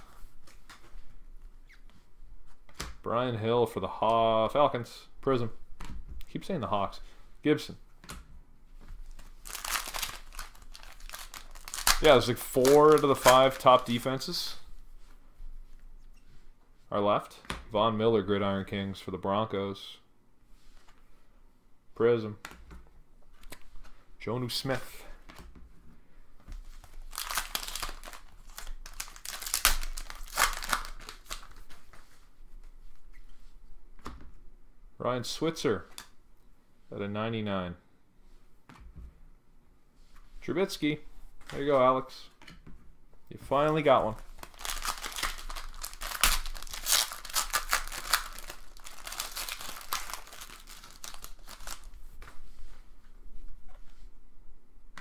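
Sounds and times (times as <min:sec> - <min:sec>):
foil wrapper tearing and crinkling: 0:09.1 - 0:14.1, 0:26.8 - 0:31.6, 0:43.8 - 0:52.0.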